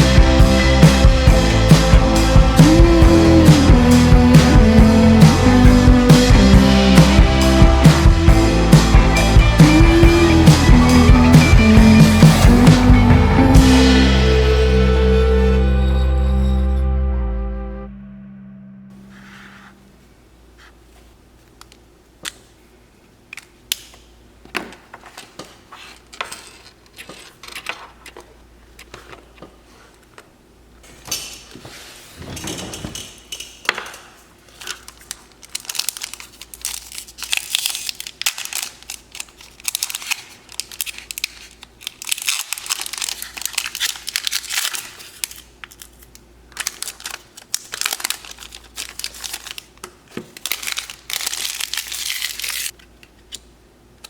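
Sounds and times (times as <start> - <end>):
foil pack crinkling and tearing: 34.4 - 52.8.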